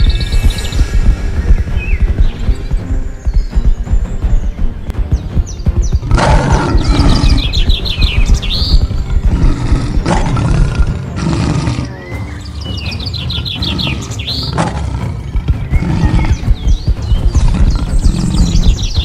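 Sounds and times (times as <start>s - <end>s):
bird trill and rising whistle: 0.0s - 4.6s
background music: 0.0s - 19.0s.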